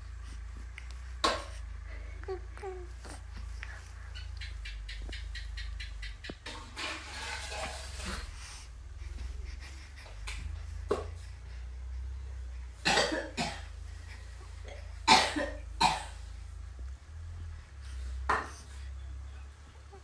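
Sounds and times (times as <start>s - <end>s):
baby coughing: 12.8s - 13.8s, 14.7s - 16.2s.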